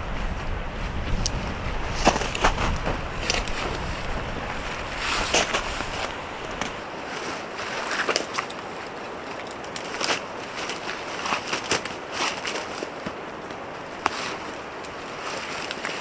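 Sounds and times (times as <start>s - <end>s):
strong wind buffeting microphone: 0.0s - 6.8s.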